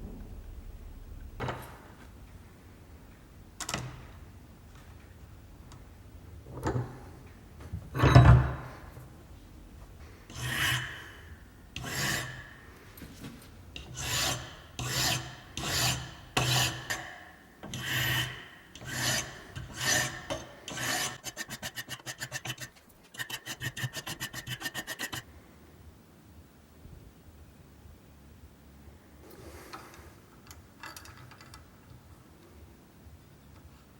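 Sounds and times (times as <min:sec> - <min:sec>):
hand file rasping: 0:10.3 - 0:11.2, 0:11.8 - 0:12.5, 0:13.8 - 0:17.0, 0:17.7 - 0:25.2.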